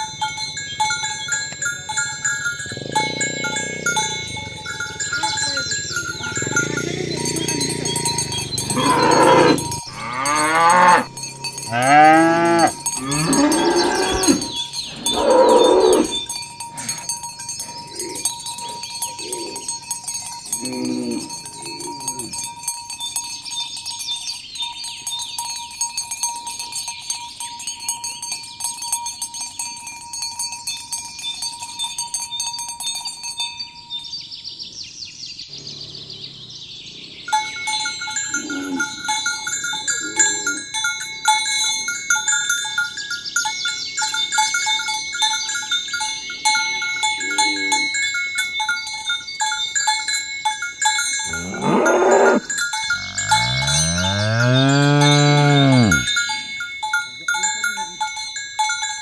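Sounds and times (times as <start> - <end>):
cowbells jangling: 0.0 - 34.8, 35.6 - 59.0
cow mooing: 2.3 - 17.1, 20.6 - 22.3, 35.5 - 39.1, 39.9 - 40.6, 47.2 - 48.0, 51.2 - 56.1.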